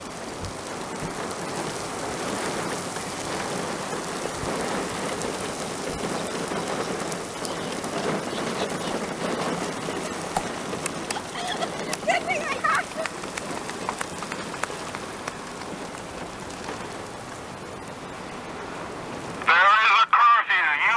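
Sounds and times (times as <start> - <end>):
heavy rain and wind: 0.0 - 20.9.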